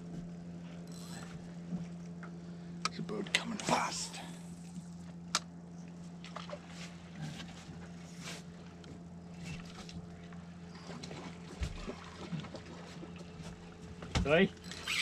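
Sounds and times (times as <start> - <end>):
motorboat engine droning: 0.0 - 15.0
water splashes: 10.8 - 13.4.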